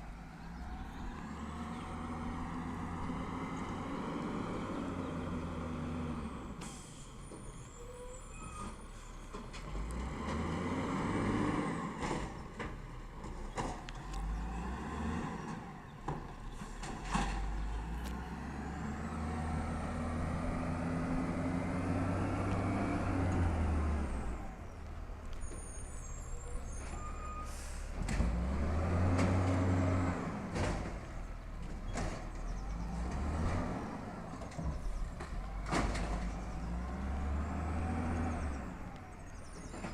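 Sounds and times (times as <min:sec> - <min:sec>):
garbage truck engine revving: 0:09.6 - 0:12.3, 0:17.1 - 0:24.7, 0:26.8 - 0:39.9
air brake hisses: 0:27.4 - 0:28.0.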